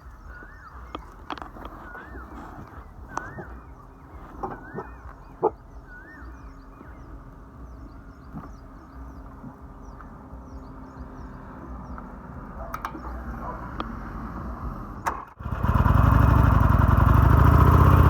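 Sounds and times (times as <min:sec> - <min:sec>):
curved calls: 0:00.0 - 0:15.2
clicks: 0:11.9 - 0:14.0.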